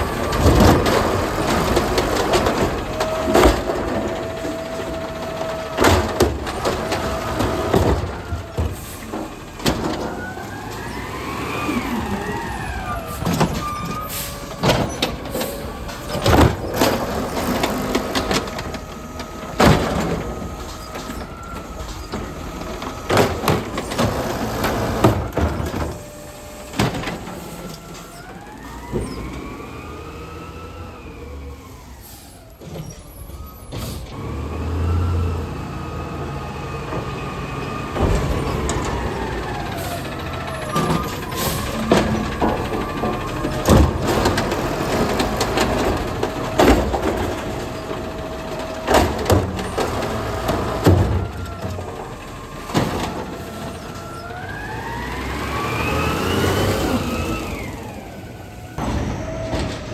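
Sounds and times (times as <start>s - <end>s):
garbage truck engine revving: 0.0s - 59.9s
loud bangs and clanks: 36.8s - 56.7s, 58.7s - 59.9s.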